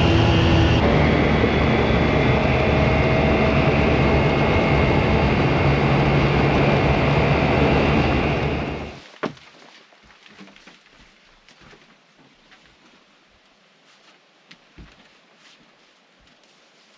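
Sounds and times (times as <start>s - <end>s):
faint high whine: 0.0s - 9.0s
utility vehicle engine running: 0.0s - 9.0s.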